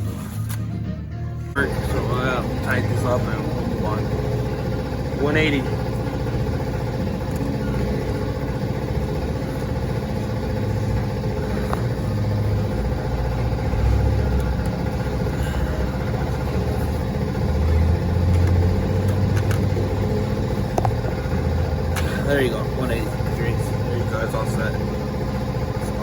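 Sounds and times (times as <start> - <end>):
low engine-like rumble: 1.5 - 26.0.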